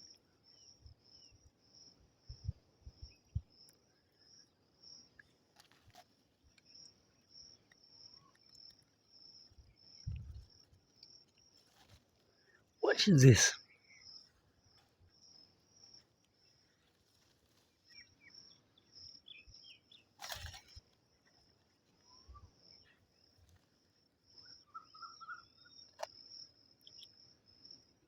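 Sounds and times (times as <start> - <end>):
bird chirps: 17.9 - 20.1, 24.4 - 26.0.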